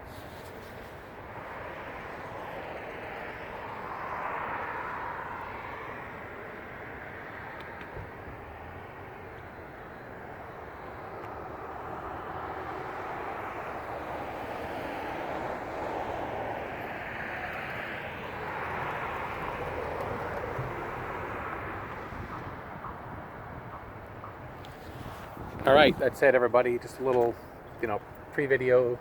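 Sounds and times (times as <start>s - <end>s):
passing vehicles: 0.0s - 29.0s.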